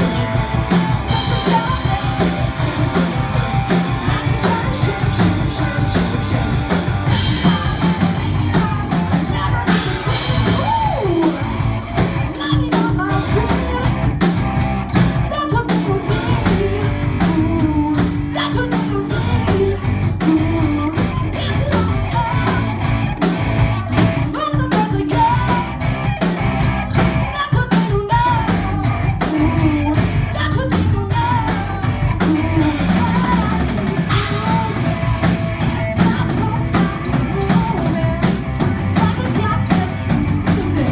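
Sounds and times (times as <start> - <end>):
person singing: 0.0 - 13.9, 24.3 - 25.8, 27.4 - 40.9
bass guitar: 0.0 - 40.9
distorted electric guitars: 0.0 - 40.9
pounding drum kit: 0.0 - 40.9.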